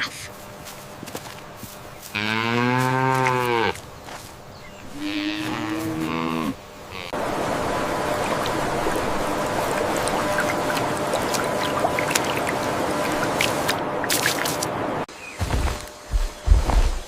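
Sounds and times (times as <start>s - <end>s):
calf mooing: 2.1s - 3.8s, 4.9s - 7.2s.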